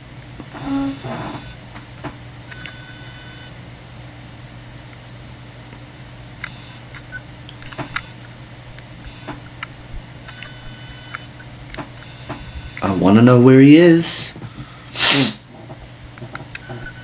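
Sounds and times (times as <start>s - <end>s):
hissy bursts: 0.0s - 1.7s, 6.4s - 13.2s, 14.1s - 17.0s
sharp clicks: 0.0s - 5.1s, 5.7s - 13.2s, 15.0s - 17.0s
steady low hum: 0.0s - 17.0s.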